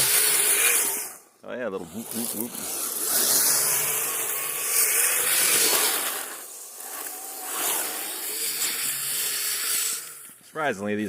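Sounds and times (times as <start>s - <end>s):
faint motor whine: 0.0s - 11.0s
rc vehicle tracks churning snow: 0.0s - 11.0s.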